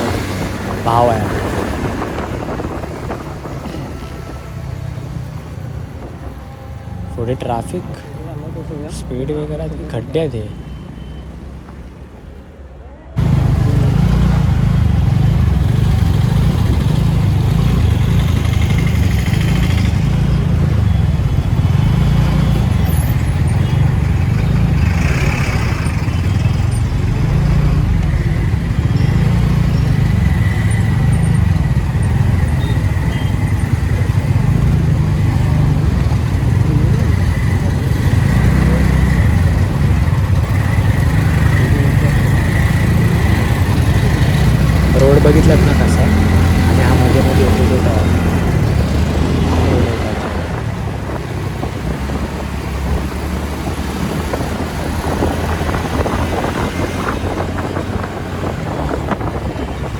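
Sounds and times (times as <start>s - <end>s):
wind rumble on microphone: 0.0s - 7.0s, 43.2s - 59.9s
road and traffic noise: 0.0s - 59.9s.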